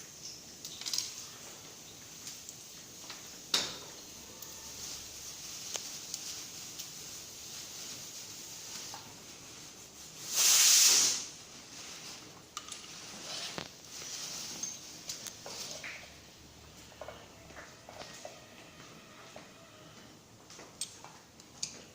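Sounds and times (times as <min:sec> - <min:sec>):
gas hissing: 0:10.2 - 0:11.5.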